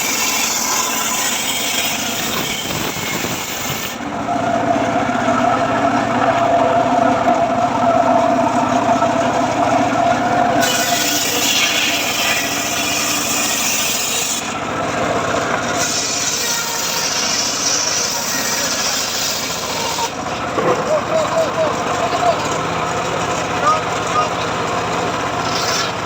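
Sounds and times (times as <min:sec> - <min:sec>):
saw blade cutting wood: 0:00.0 - 0:04.1, 0:08.7 - 0:21.1, 0:25.2 - 0:26.0
circular saw running: 0:00.0 - 0:26.0.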